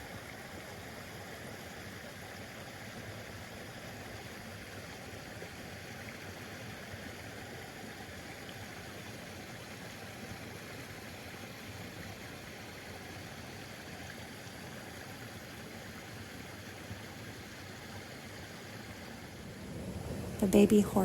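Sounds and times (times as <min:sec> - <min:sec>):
stream rushing: 0:18.1 - 0:21.0.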